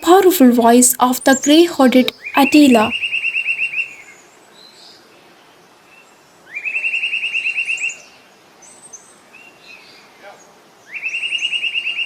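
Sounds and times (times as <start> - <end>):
bird calling rapid repeated notes: 0.0 - 3.1.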